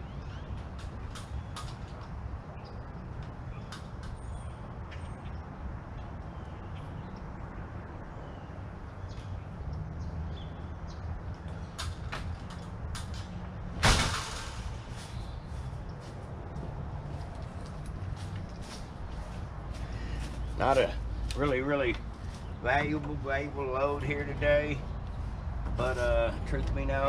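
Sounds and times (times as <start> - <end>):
low outdoor rumble: 0.0 - 27.0
loud metal clank: 13.8 - 15.0.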